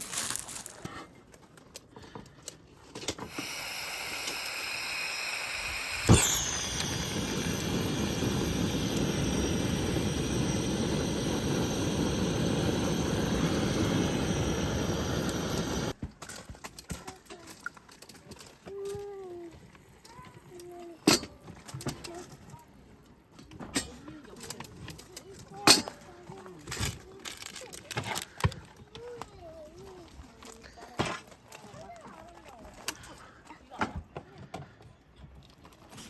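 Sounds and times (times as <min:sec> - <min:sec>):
steady hissing with whistling: 0:03.2 - 0:16.0
sharp pop: 0:06.1 - 0:06.6.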